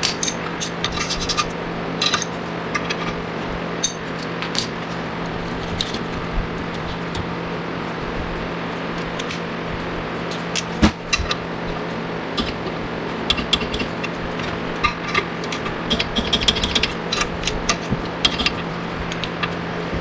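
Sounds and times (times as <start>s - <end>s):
hand tools clinking on metal: 0.0s - 3.0s
steady low hum: 0.0s - 20.0s.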